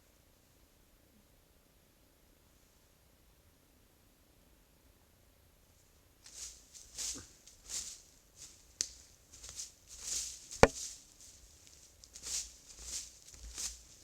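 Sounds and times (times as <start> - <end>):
footsteps crunching: 6.3 - 14.0.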